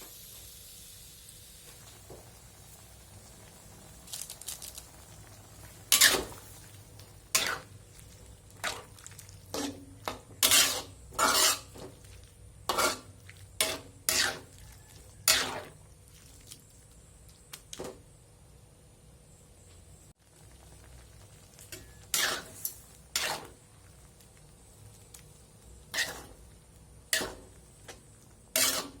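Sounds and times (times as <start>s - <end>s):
utensil scraping cooking pan: 5.6s - 16.4s, 21.6s - 23.8s, 25.6s - 26.5s, 27.1s - 29.0s.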